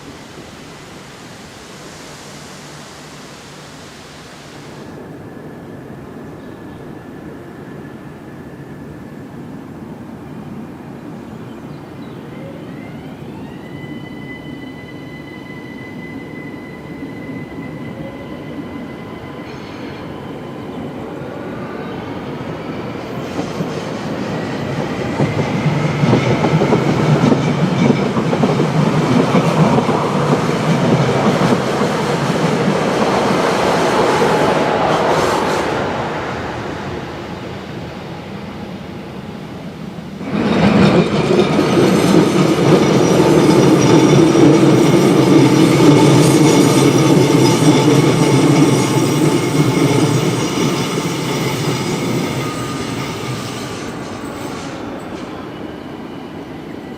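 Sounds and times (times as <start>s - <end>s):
high electric whine: 0.0s - 5.0s
train running noise: 0.0s - 56.9s.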